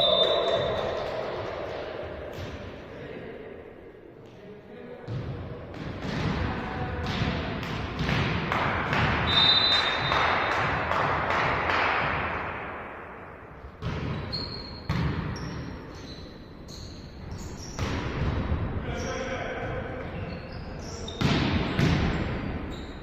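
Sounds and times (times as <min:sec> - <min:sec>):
high whistle: 0:00.0 - 0:00.8, 0:09.3 - 0:10.2
sneakers squeaking on court: 0:13.8 - 0:18.0, 0:20.0 - 0:23.0.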